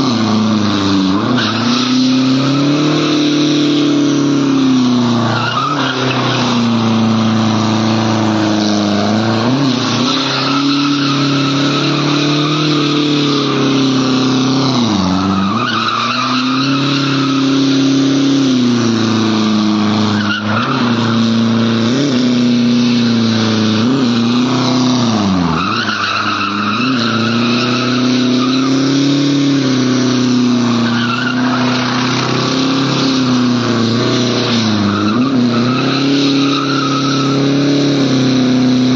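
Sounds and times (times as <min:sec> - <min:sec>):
car engine at high revs: 0:00.0 - 0:38.9
tyres squealing on road: 0:00.0 - 0:38.9.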